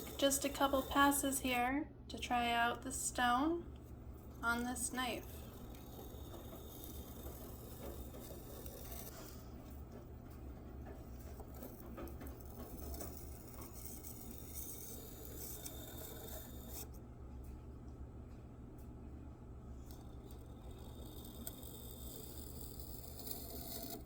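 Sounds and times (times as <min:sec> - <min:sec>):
knife scraping on whetstone: 0:00.0 - 0:01.4, 0:04.2 - 0:09.8, 0:10.9 - 0:17.0, 0:19.9 - 0:24.0
steady low hum: 0:00.0 - 0:24.0.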